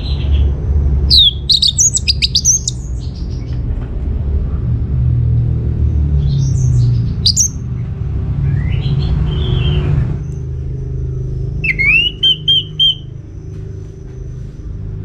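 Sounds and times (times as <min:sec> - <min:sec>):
thrush singing: 0:01.1 - 0:02.7, 0:11.6 - 0:13.1.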